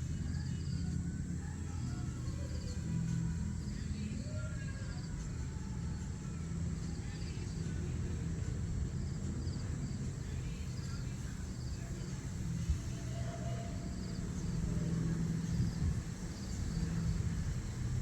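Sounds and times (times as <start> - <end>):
distant road traffic rumble: 0.0 - 18.0
small birds chirping: 6.8 - 18.0.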